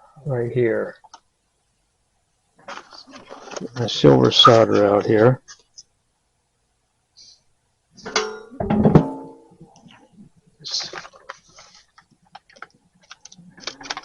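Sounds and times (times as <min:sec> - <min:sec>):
metal objects clanking: 0:08.0 - 0:09.4
objects clicking and rummaging: 0:10.7 - 0:14.0.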